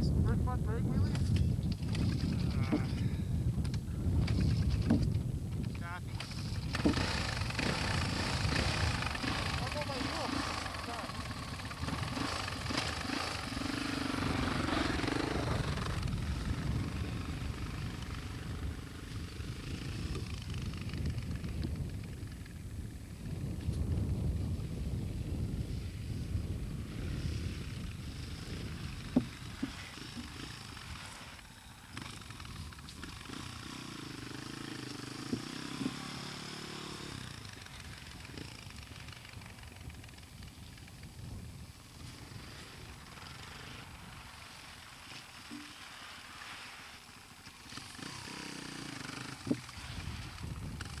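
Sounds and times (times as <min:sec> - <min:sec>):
dirt bike engine running: 0:00.0 - 0:51.0.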